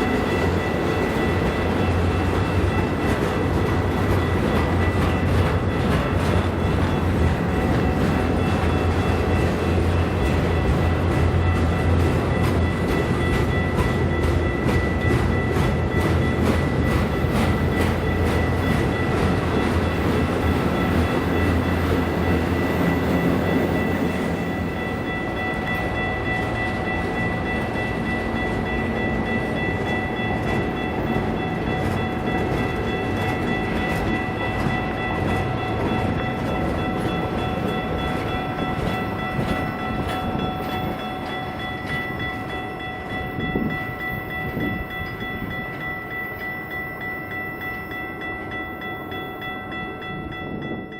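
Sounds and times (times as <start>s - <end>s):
freight train cars rumbling and clattering: 0.0s - 50.9s.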